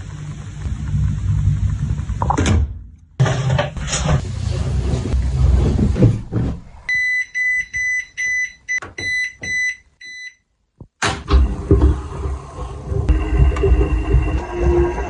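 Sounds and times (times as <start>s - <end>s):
loud rumbling noise: 12.2s - 15.0s.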